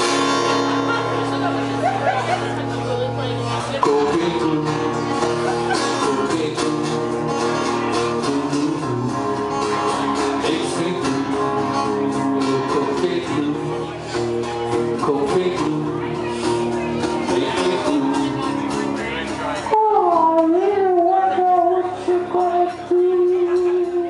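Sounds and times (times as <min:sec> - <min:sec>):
strummed guitar chords: 0:00.0 - 0:24.0.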